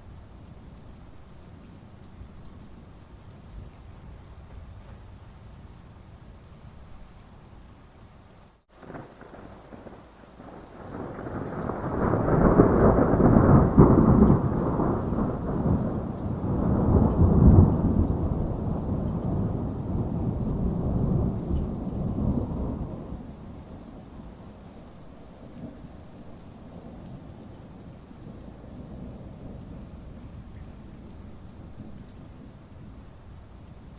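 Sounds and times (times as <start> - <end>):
steady rain: 0.0 - 33.9
rolling thunder: 8.8 - 32.6.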